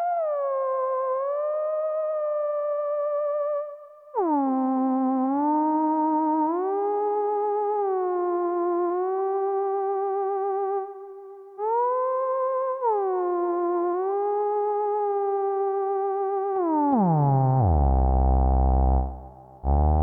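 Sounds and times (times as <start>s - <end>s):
synthesizer lead with vibrato: 17.7s - 20.0s.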